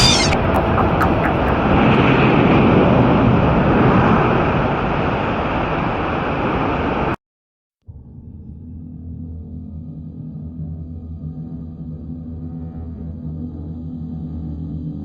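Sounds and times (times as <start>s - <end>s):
loud steady rushing noise: 0.4s - 7.1s.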